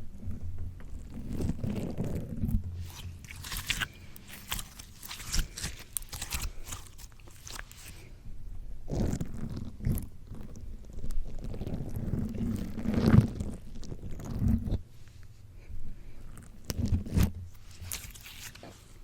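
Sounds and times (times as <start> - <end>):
wet slime squishing: 0.2 - 8.2, 8.8 - 14.9, 16.0 - 19.0
slime crackling and popping: 1.0 - 8.0, 9.0 - 14.8.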